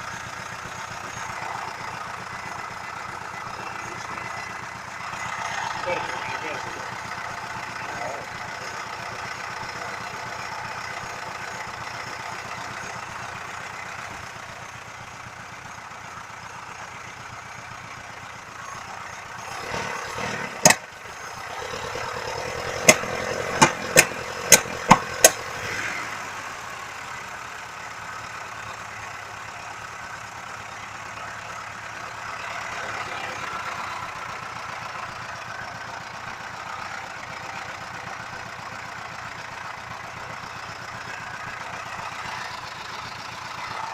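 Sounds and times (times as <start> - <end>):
car engine idling: 0.0 - 43.9
sharp clicks or knocks: 20.6 - 20.8, 22.8 - 25.4.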